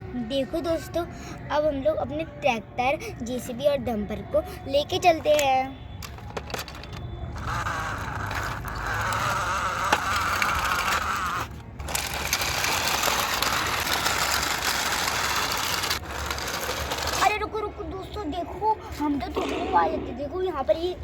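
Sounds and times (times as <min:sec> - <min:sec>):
toy vehicles whirring and rattling: 0:04.6 - 0:18.1.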